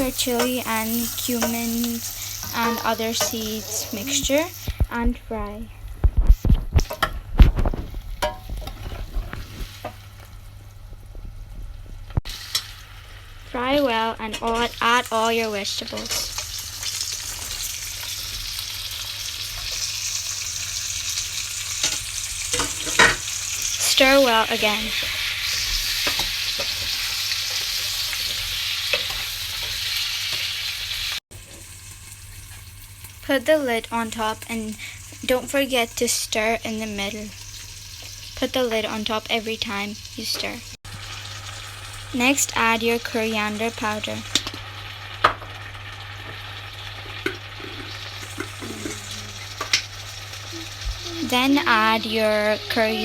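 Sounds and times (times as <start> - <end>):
food sizzling in hot oil: 0.0 - 11.3, 12.1 - 53.0
utensil scraping and clinking on pan: 8.2 - 9.2.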